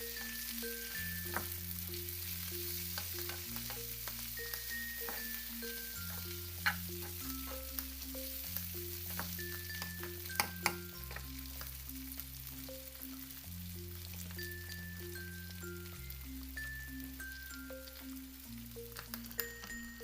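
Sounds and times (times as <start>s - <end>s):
food sizzling in a pan: 0.0s - 20.0s
light background music: 0.0s - 20.0s
utensil clicking against pan: 2.5s - 11.7s.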